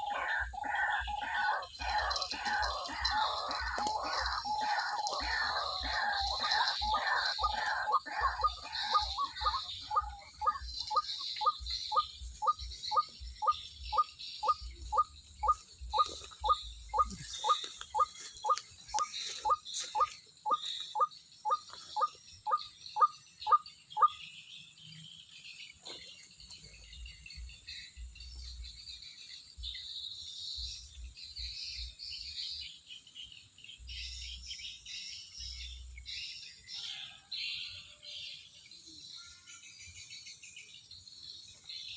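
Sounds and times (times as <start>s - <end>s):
waterhen calling: 0.0s - 24.2s
bird chirping: 0.0s - 41.9s
insect chirping: 0.0s - 41.9s.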